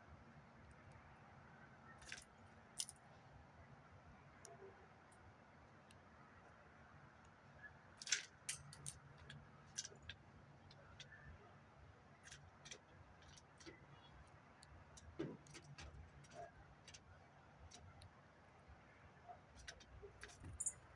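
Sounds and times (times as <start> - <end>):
birds pecking and hopping: 8.0 - 18.4.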